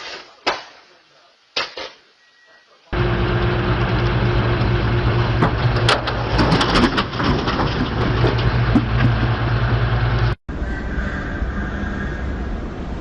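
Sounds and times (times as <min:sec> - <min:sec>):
heavy vehicle engine running: 0:03.0 - 0:12.0.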